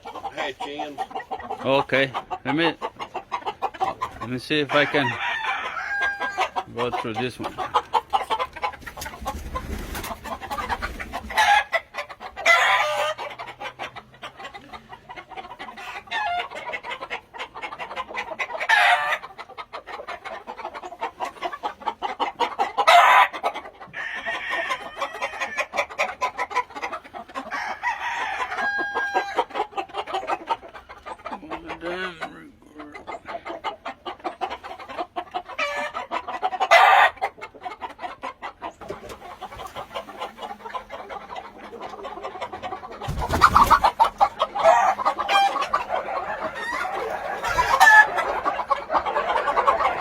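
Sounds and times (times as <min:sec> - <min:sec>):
roosters crowing: 0:00.0 - 0:08.5, 0:09.2 - 0:14.3, 0:15.7 - 0:17.1, 0:17.9 - 0:19.3, 0:22.6 - 0:32.4, 0:35.4 - 0:37.3, 0:42.7 - 0:50.0
chickens clucking: 0:00.0 - 0:50.0.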